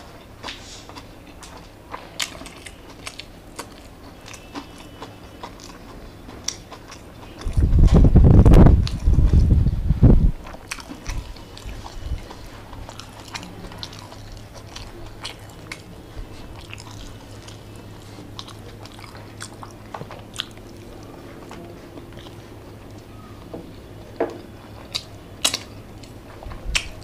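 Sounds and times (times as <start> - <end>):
chewing with mouth clicks: 0.0 - 9.7, 10.3 - 27.0
loud low rumble: 7.5 - 10.4.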